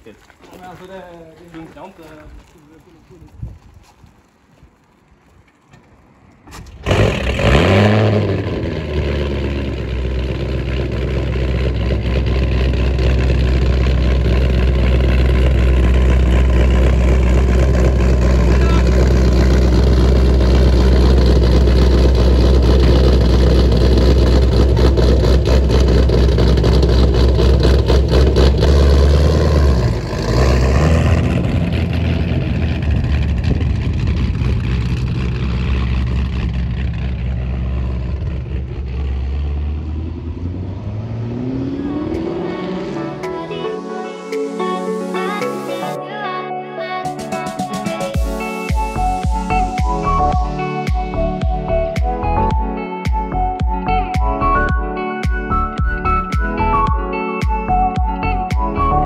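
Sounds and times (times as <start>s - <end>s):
car engine idling loudly: 6.8s - 39.8s.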